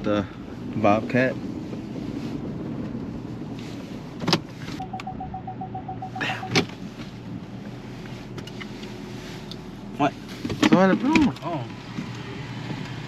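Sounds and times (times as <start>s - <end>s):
door warning chime beeping: 4.8s - 6.6s
car door shutting: 6.1s - 6.8s.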